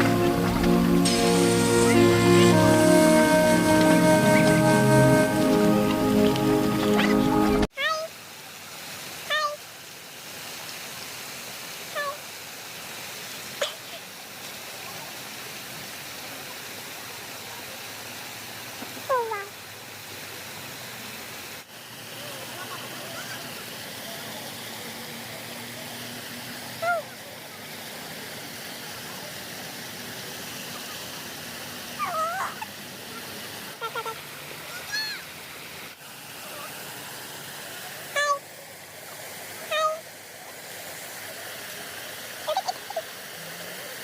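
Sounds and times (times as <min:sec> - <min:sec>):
rushing noise: 0:00.0 - 0:07.7
aviary background hiss: 0:00.0 - 0:16.6.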